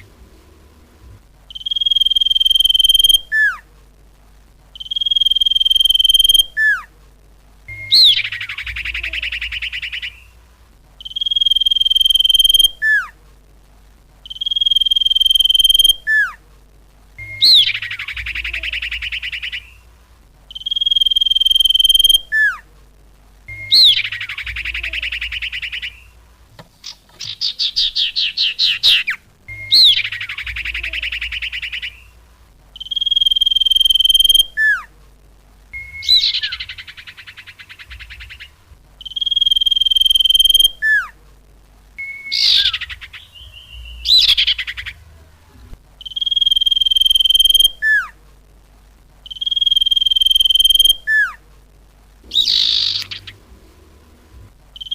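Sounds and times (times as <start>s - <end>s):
bird call whistle and trills: 1.5s - 3.6s, 4.8s - 6.9s, 7.7s - 10.4s, 11.0s - 13.1s, 14.2s - 16.4s, 17.2s - 19.9s, 20.5s - 22.6s, 23.5s - 26.2s, 26.8s - 32.2s, 32.8s - 34.9s, 35.7s - 41.1s, 42.0s - 45.0s, 46.0s - 48.2s, 49.3s - 51.4s, 52.3s - 53.5s.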